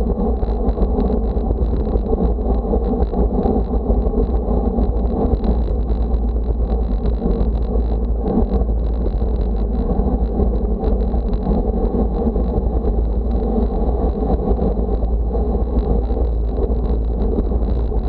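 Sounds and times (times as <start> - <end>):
wind buffeting the microphone: 0.0 - 18.0.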